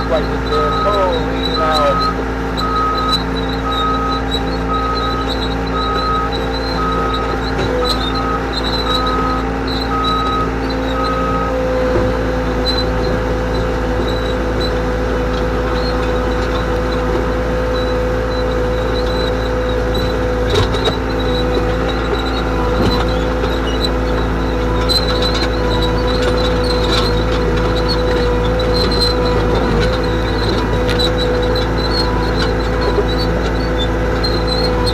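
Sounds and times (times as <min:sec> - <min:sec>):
short electronic beeps: 0:00.0 - 0:11.6
diesel engine running: 0:00.0 - 0:34.9.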